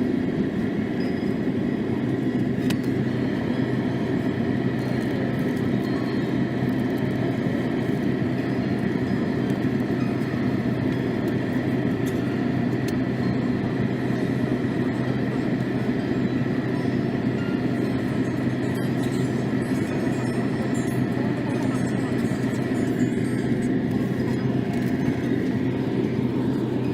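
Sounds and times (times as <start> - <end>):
mechanical rumble with hum: 0.0 - 26.9.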